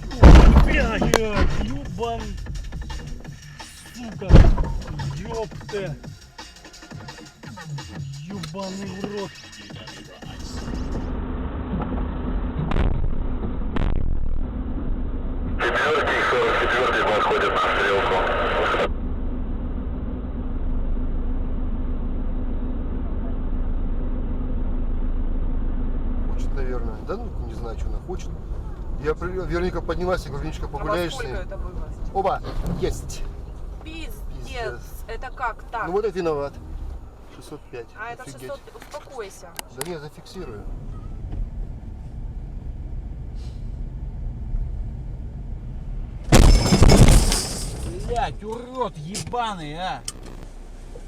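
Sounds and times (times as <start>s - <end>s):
car moving rumble: 0.0s - 51.0s
vehicle engine and road noise: 0.0s - 51.0s
loud crash of collision: 0.1s - 1.8s, 46.2s - 48.2s.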